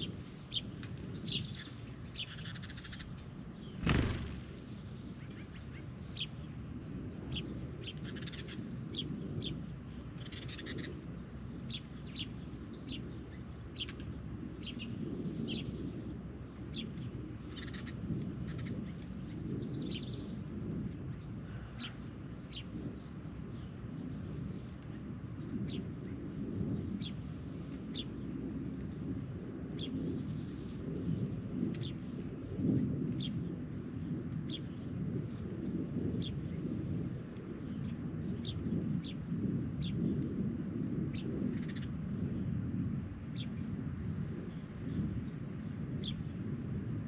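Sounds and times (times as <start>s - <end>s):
birds chirping: 0.0s - 20.4s
steady low rumble: 0.0s - 47.0s.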